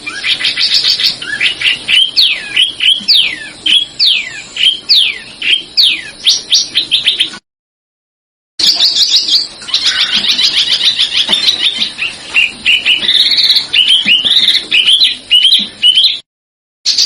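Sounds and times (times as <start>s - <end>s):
songbird chirps and trills: 0.0s - 7.4s, 8.6s - 16.2s.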